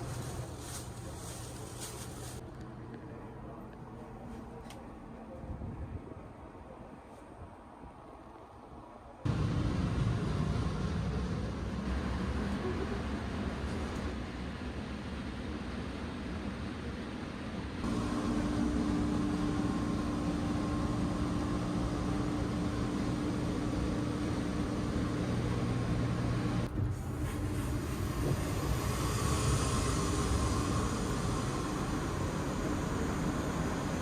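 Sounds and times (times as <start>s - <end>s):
train wheels rumbling: 9.3s - 34.0s
low hum: 17.8s - 34.0s.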